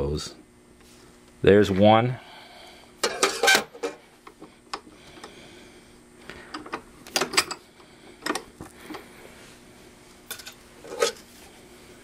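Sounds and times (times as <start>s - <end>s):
metal tools clicking and tapping: 6.5s - 7.6s.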